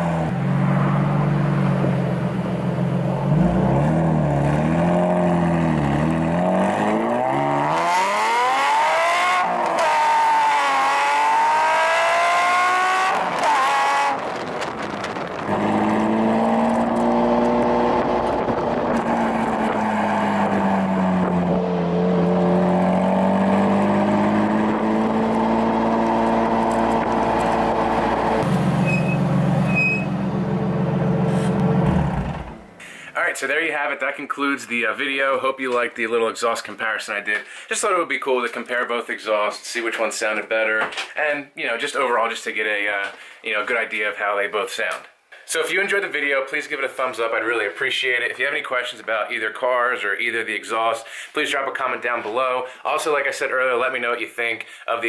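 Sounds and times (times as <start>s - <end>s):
sports car engine revving: 0.0s - 32.8s.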